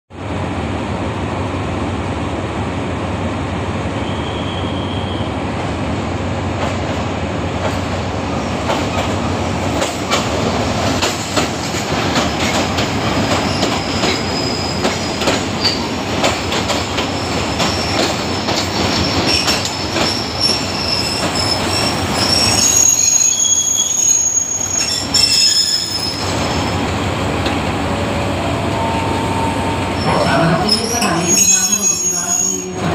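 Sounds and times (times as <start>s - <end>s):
train engine hum: 0.2s - 32.9s
wheels clacking over rail joints: 11.0s - 20.6s
high-pitched wheel squeal: 13.4s - 15.8s, 19.0s - 26.7s, 28.8s - 32.9s.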